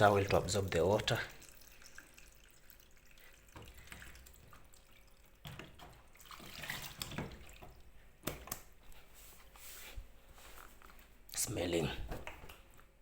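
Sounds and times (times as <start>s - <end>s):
water trickling onto towel: 0.0s - 8.0s.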